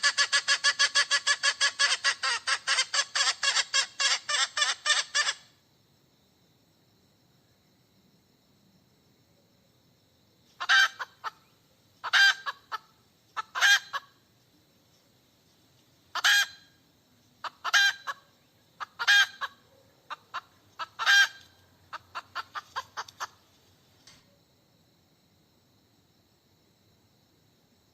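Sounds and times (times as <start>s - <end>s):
hen clucking: 0.0s - 5.4s, 10.6s - 11.4s, 12.0s - 14.1s, 16.1s - 16.6s, 17.4s - 18.2s, 18.8s - 23.4s
hen squawking: 0.0s - 5.4s.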